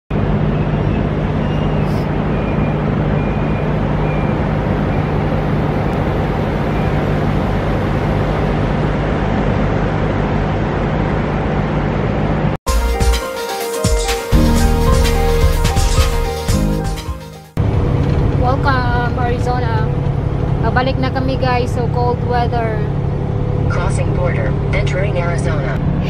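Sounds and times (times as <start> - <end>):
vehicle driving on highway: 17.6 - 26.0.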